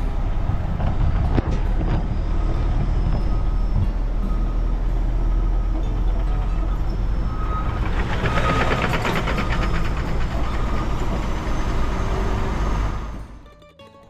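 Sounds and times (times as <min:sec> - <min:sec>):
diesel truck engine running: 0:00.0 - 0:13.5
rapid pulsing rattle: 0:05.4 - 0:13.4.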